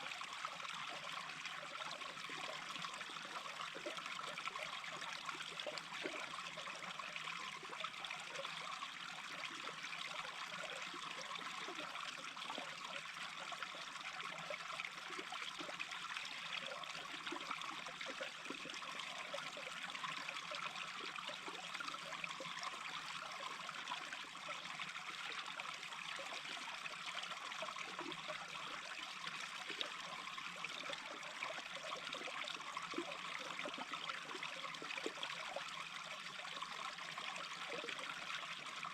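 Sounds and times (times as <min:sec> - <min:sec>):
brook babbling: 0:00.0 - 0:38.9.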